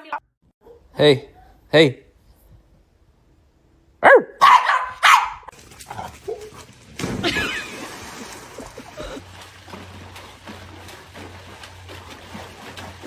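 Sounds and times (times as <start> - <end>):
dog barking: 0.6 - 1.6, 4.0 - 5.5.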